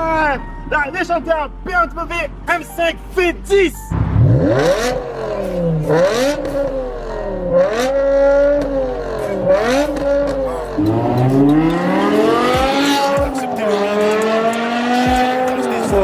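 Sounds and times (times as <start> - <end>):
car engine revving: 3.9 - 16.0.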